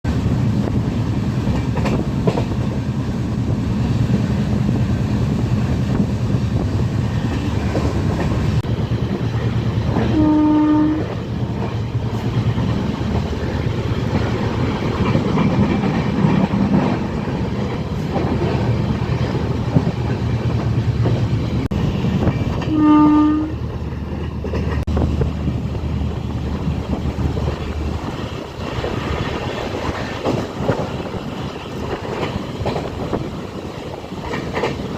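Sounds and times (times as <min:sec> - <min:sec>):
train rumble with wheel clatter: 0:00.0 - 0:34.9
locomotive horn blasts: 0:10.0 - 0:11.2, 0:22.6 - 0:23.6.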